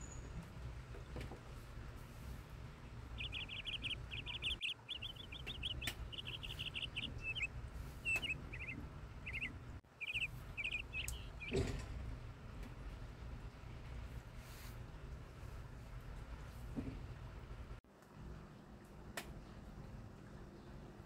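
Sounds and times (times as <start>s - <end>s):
steady low rumble: 1.6s - 17.8s
songbird chirping: 2.8s - 11.9s.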